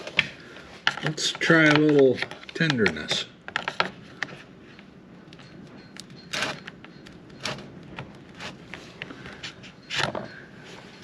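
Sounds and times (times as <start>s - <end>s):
plastic and metal parts clicking: 0.0s - 4.4s
metal parts scraping: 5.9s - 7.7s.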